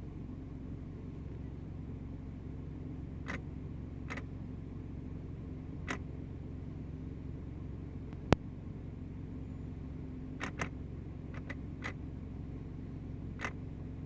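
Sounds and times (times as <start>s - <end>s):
car engine idling: 0.0s - 14.0s
sharp engine clicks: 3.1s - 4.6s, 5.2s - 6.3s, 8.1s - 8.5s, 9.8s - 14.0s.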